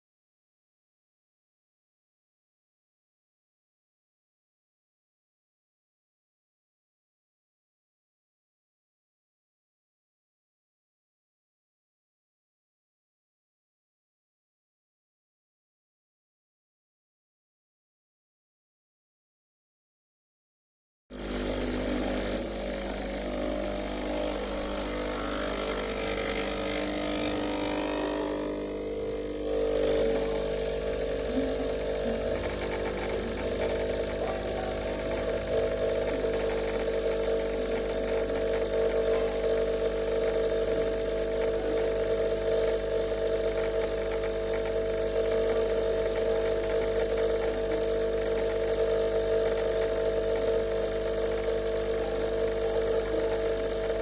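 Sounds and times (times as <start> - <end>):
espresso machine humming: 21.1 - 54.0.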